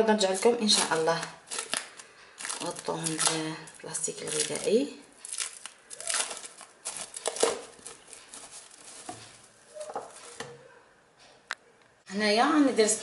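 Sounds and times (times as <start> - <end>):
cling film crinkling: 0.6 - 10.6.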